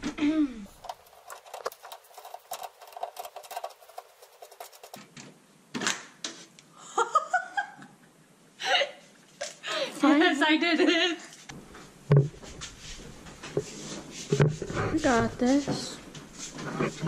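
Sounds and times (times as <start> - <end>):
metal tool scraping a fitting: 0.7 - 5.0.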